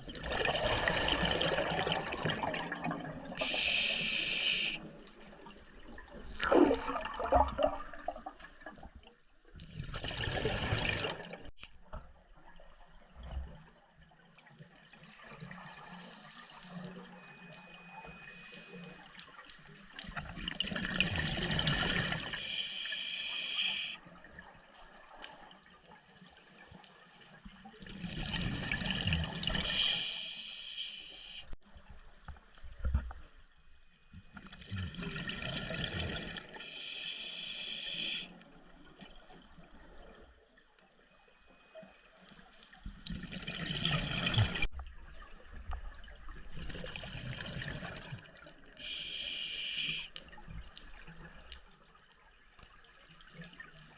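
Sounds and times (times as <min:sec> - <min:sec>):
exhaled bubbles rushing: 0:00.0 - 0:03.4, 0:06.4 - 0:08.4, 0:09.7 - 0:11.5, 0:43.1 - 0:44.7
hissing breath through regulator: 0:03.4 - 0:04.9, 0:22.4 - 0:24.0, 0:29.6 - 0:31.6, 0:36.6 - 0:38.3, 0:48.8 - 0:50.2.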